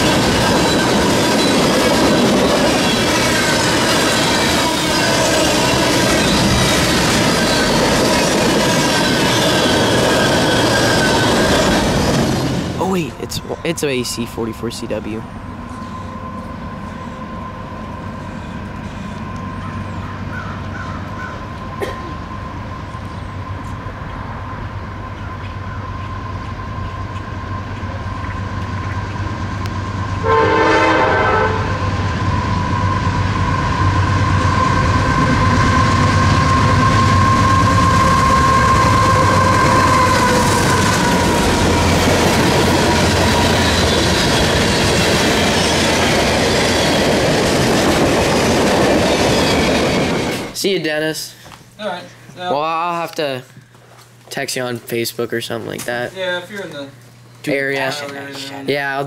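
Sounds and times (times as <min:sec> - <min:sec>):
freight cars rumbling over rails: 0:00.0 - 0:50.6
train horn sounding: 0:30.2 - 0:32.1, 0:34.1 - 0:42.2.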